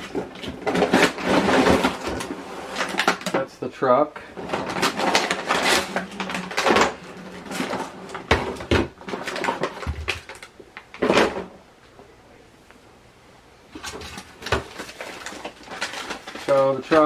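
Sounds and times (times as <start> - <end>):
packaging rustling: 4.4 - 11.2, 13.8 - 17.0.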